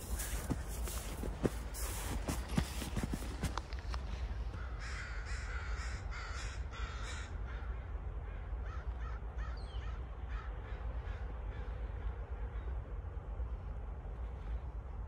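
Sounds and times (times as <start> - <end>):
bird calling: 0.0 - 3.6
steady low rumble: 0.0 - 15.0.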